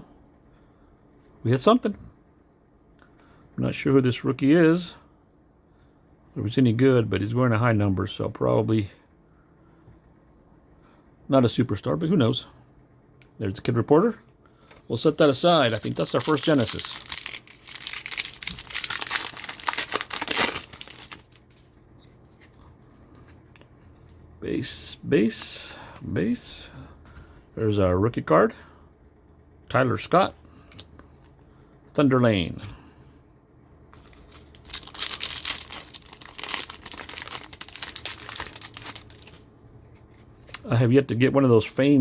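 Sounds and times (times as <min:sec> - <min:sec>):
wrapper crinkling and tearing: 0:15.1 - 0:21.7, 0:34.0 - 0:39.4.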